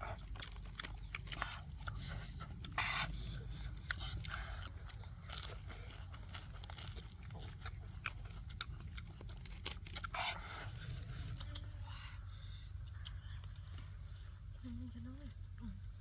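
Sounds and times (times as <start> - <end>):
small crunches and clicks: 0.0 - 2.7, 3.9 - 10.6
person chewing food: 0.0 - 14.6.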